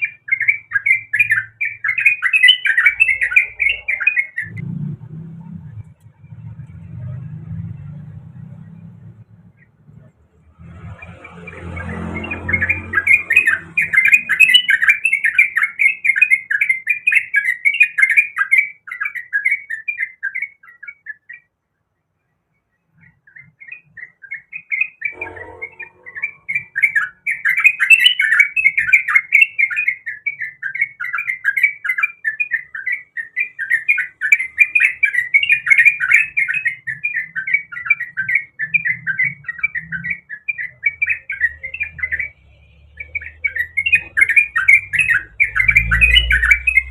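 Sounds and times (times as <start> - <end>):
bird singing bubbly chattering notes: 0.0 - 4.6, 23.2 - 46.9.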